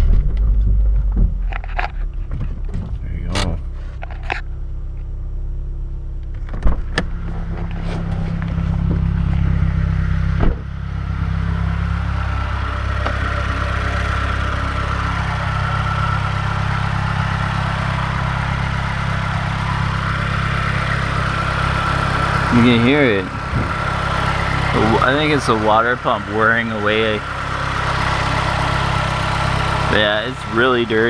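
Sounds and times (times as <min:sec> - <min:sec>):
car engine idling: 0:00.0 - 0:31.0
thump: 0:10.4 - 0:10.7.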